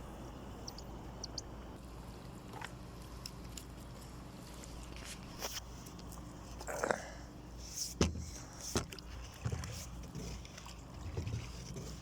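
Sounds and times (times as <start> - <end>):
knocks against boat hull: 8.0 - 9.7.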